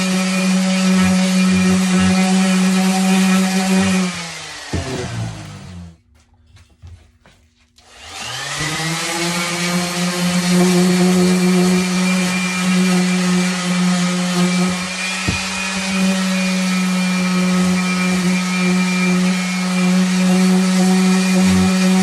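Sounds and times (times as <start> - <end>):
orbital sander running on wood: 0.0 - 5.9, 7.9 - 22.0.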